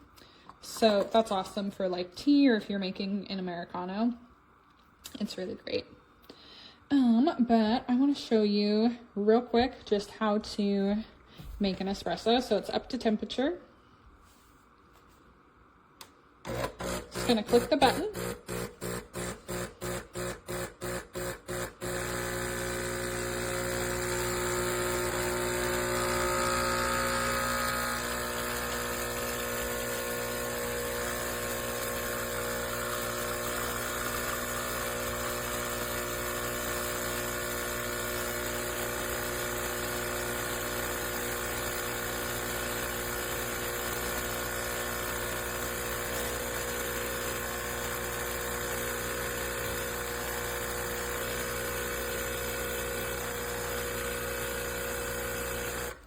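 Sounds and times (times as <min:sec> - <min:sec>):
espresso machine pump buzzing: 0:16.4 - 0:56.0.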